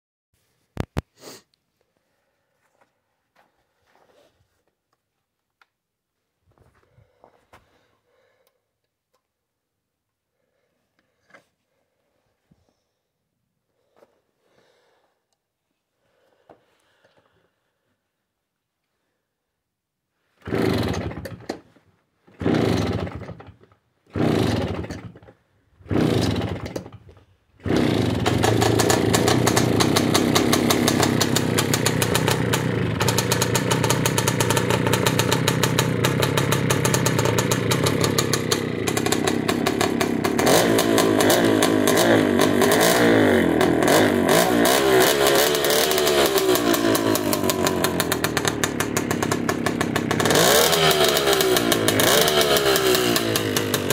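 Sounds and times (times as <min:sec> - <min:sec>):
moped engine starting and revving: 0:20.4 - 0:53.9.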